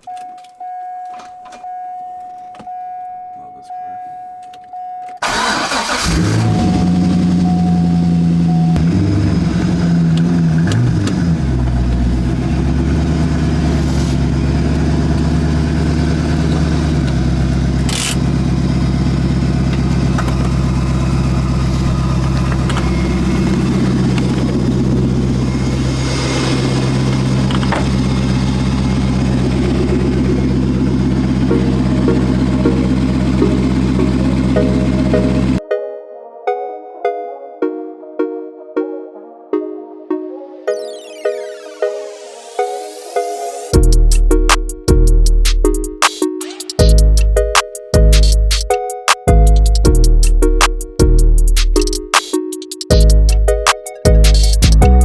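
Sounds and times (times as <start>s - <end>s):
car engine idling: 5.2s - 35.6s.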